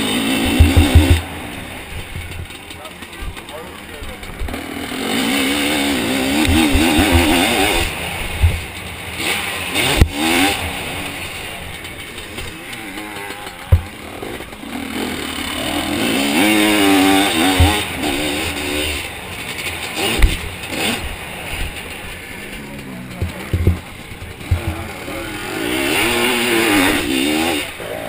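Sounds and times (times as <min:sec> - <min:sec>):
two-stroke engine revving: 0:00.0 - 0:28.0
sharp knocks from hitting bumps: 0:00.4 - 0:01.3, 0:06.3 - 0:08.7, 0:13.5 - 0:14.0, 0:17.4 - 0:18.2, 0:20.0 - 0:21.9, 0:23.1 - 0:24.9.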